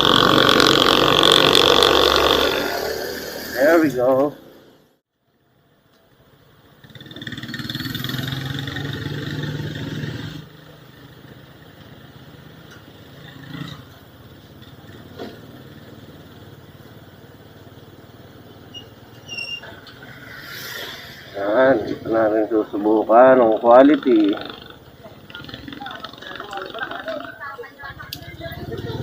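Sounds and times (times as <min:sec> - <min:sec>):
motorcycle engine running: 0:00.0 - 0:04.0, 0:21.8 - 0:29.0
road noise: 0:00.0 - 0:29.0.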